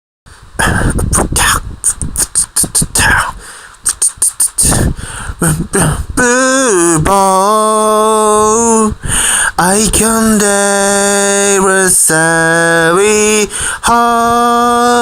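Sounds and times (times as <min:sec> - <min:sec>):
beatboxed drum pattern: 0:00.6 - 0:06.0.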